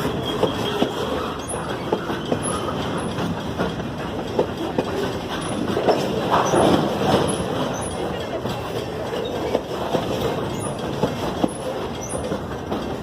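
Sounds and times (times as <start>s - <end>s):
high wheel squeals: 0.0s - 3.2s
train wheels clattering: 0.0s - 13.0s.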